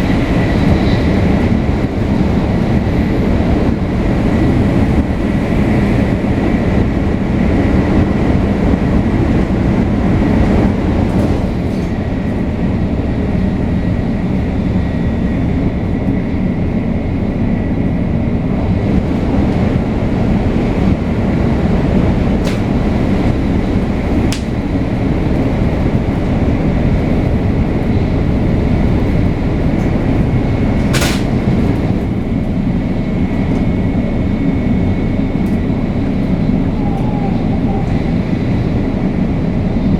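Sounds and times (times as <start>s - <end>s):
train wheels rumbling: 0.0s - 39.9s.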